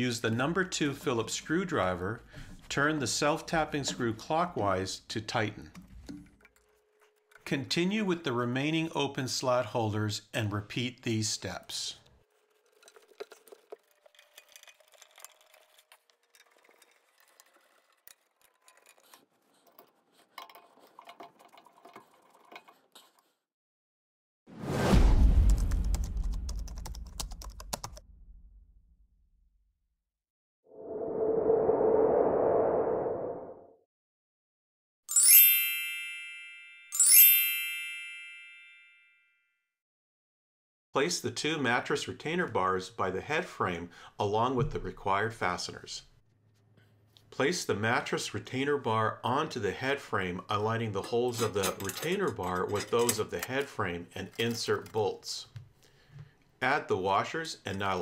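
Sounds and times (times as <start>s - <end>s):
plastic clicks and scrapes on metal: 12.3s - 23.3s, 51.0s - 56.4s
screwdriver turning screw: 12.3s - 23.3s
bright chime: 35.1s - 39.1s.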